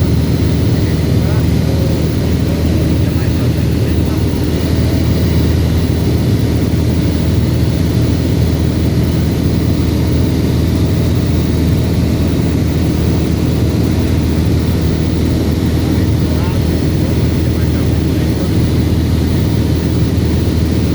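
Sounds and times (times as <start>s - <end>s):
propeller plane engine running: 0.0s - 20.9s.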